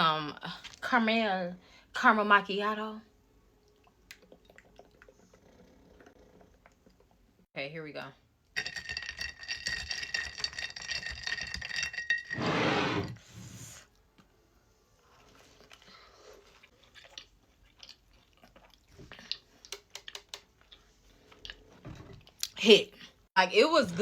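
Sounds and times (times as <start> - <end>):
quiet wet chewing: 3.6 - 7.4, 15.0 - 23.3.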